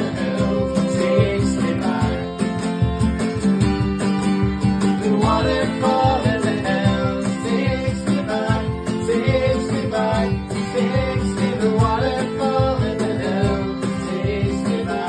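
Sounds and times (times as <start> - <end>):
person singing: 0.0 - 2.6, 5.0 - 15.0
strummed acoustic guitar: 0.0 - 15.0.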